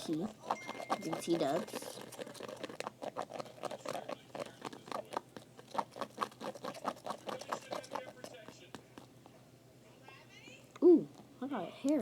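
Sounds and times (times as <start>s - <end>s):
slime stirring clicks: 0.0s - 9.1s.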